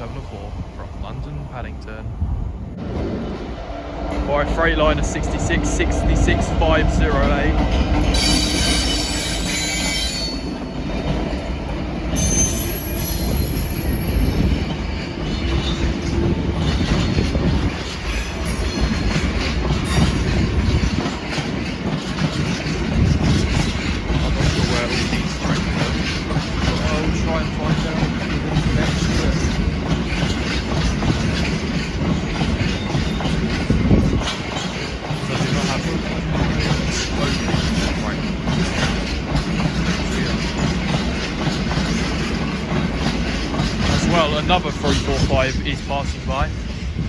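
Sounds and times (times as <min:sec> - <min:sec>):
freight train rumbling past: 0:00.0 - 0:47.0
wheels clattering over rail joints: 0:06.3 - 0:47.0
high-pitched wheel squeal: 0:12.2 - 0:14.3.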